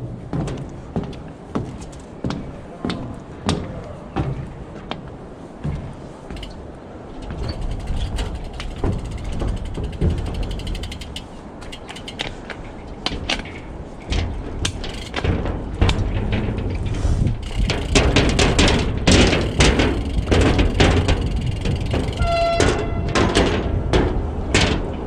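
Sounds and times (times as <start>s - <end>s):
wind: 0.0s - 25.0s
tyre rumble: 5.6s - 25.0s
sharp clicks and knocks: 5.7s - 25.0s
bicycle hub ratchet ticking: 7.5s - 12.4s, 14.7s - 15.2s, 17.4s - 22.8s.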